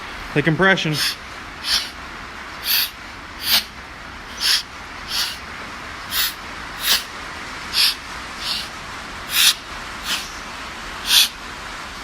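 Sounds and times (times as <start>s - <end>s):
short hiss of air: 0.9s - 2.0s, 2.6s - 5.5s, 6.1s - 10.4s, 11.0s - 11.4s.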